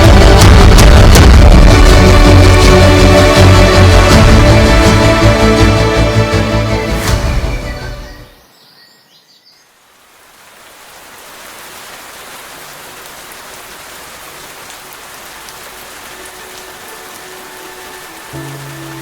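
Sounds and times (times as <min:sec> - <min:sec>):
steady rain: 0:00.0 - 0:08.3, 0:09.6 - 0:19.0.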